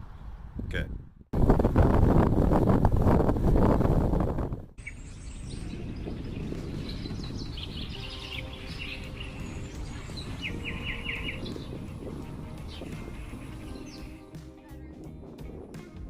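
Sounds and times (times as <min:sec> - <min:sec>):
small birds chirping and singing: 0:04.8 - 0:14.4.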